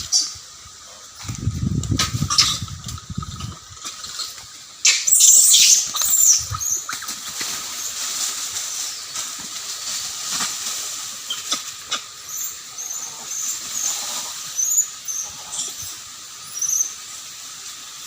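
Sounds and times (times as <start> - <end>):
monkeys screeching: 2.2 - 2.7, 3.3 - 7.2, 11.2 - 17.0
monkeys squeaking: 2.2 - 7.2, 11.2 - 16.9.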